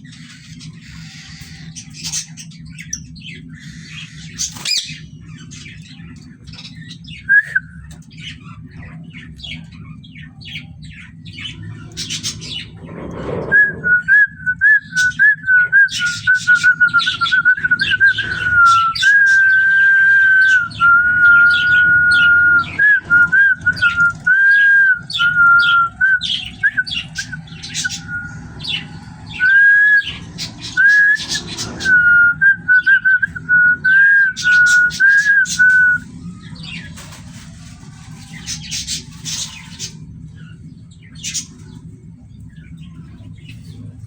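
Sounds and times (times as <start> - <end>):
parrots chirping: 0.0 - 14.0, 14.8 - 41.6
wavering whistle: 13.5 - 36.1.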